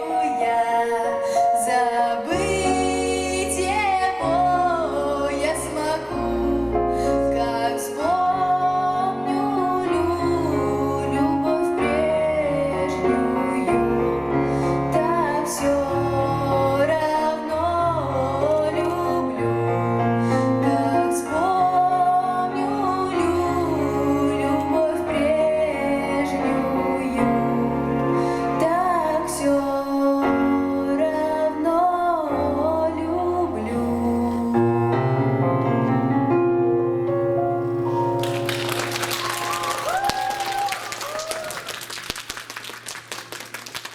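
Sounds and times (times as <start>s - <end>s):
woman singing with vibrato: 0.0s - 34.8s.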